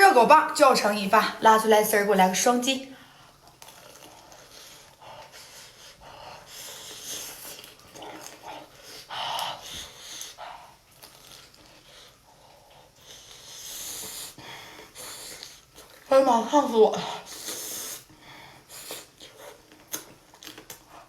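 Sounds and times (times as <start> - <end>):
person chewing food: 3.3 - 6.0, 6.7 - 16.1, 17.2 - 21.0.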